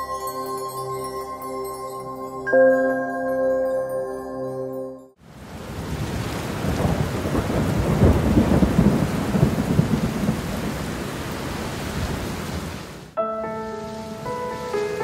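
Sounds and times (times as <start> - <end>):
heavy rain on puddles: 5.2 - 13.2.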